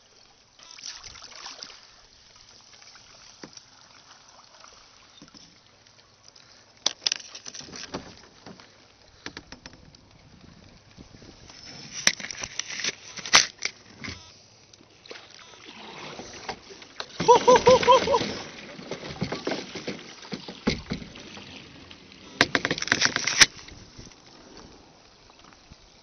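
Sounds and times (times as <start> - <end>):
paddle splashes: 0.0 - 26.0
ice knocking against kayak hull: 6.8 - 14.2, 16.2 - 24.7.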